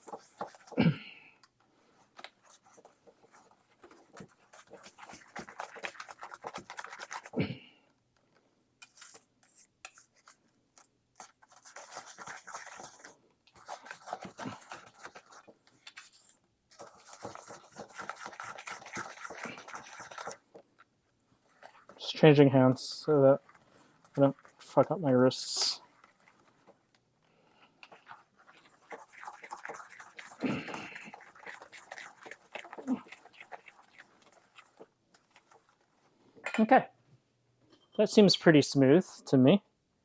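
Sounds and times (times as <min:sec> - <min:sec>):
dough scraping and squelching: 0:00.0 - 0:01.3, 0:01.9 - 0:07.8, 0:11.2 - 0:20.6, 0:21.4 - 0:26.9, 0:27.9 - 0:35.9.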